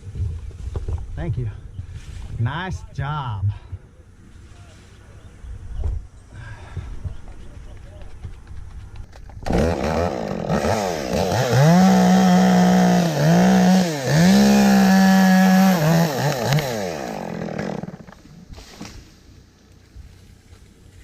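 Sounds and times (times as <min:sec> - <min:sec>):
chainsaw cutting wood: 0:09.1 - 0:19.0.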